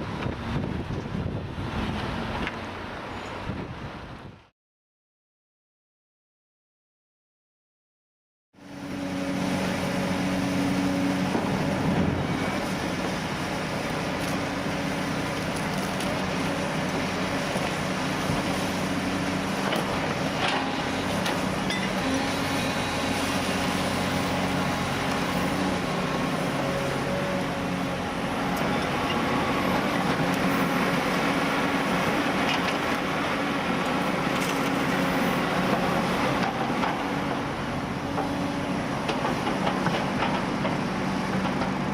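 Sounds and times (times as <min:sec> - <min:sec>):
diesel demolition machinery running: 0:08.6 - 0:41.9.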